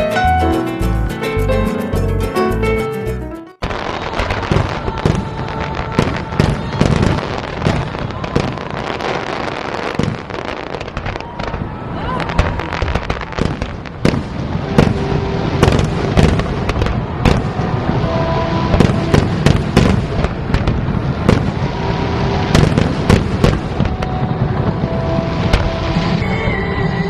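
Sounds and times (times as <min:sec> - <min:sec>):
fireworks bursting with sharp bangs: 0:03.6 - 0:26.5
fireworks crackling: 0:03.6 - 0:26.5.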